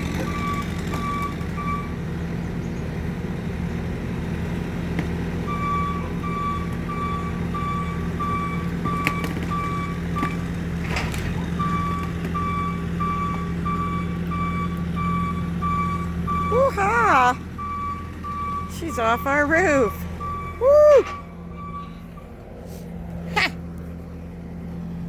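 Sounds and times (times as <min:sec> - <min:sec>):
vehicle engine running: 0:00.0 - 0:25.0
backup alarm beeping: 0:05.5 - 0:10.4, 0:11.6 - 0:22.3.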